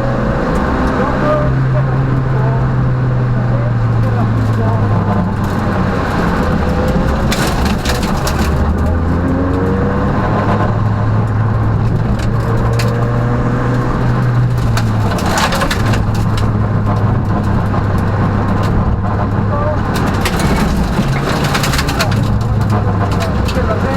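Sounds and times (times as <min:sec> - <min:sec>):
car engine pulling under load: 0:00.0 - 0:23.9
tyre and road noise: 0:00.0 - 0:23.9
knocks and clatter in car body: 0:04.3 - 0:09.6, 0:13.7 - 0:23.9.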